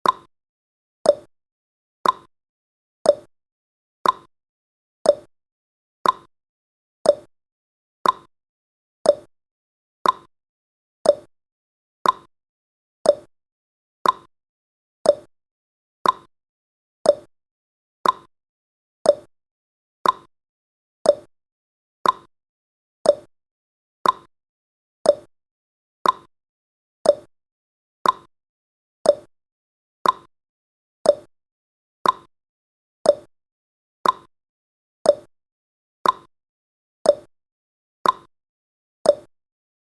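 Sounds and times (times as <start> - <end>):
clock ticking: 2.0 - 2.3, 4.0 - 4.3, 6.0 - 6.3, 8.0 - 8.3, 10.0 - 10.3, 12.0 - 12.3, 14.0 - 14.3, 15.1 - 15.3, 16.0 - 16.3, 18.0 - 18.3, 20.0 - 20.3, 22.0 - 22.3, 24.0 - 24.3, 25.1 - 25.3, 26.0 - 26.3, 27.1 - 27.3, 28.0 - 28.3, 29.1 - 29.3, 30.0 - 30.3, 32.0 - 32.3, 33.1 - 33.3, 34.0 - 34.3, 36.0 - 36.3, 38.0 - 38.3, 39.1 - 39.3.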